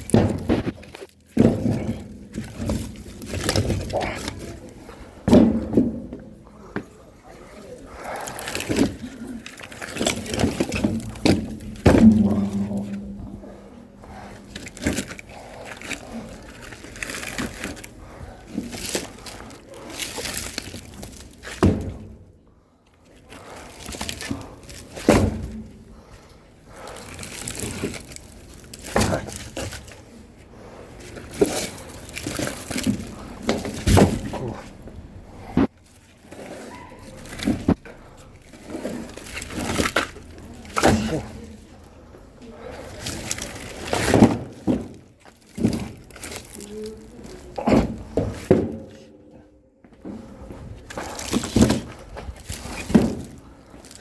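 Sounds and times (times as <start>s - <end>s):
firewood logs knocking together: 0.0s - 4.6s, 5.2s - 6.8s, 8.2s - 13.4s, 18.5s - 22.3s, 23.8s - 25.8s, 31.1s - 34.9s, 43.0s - 49.1s, 50.9s - 54.0s.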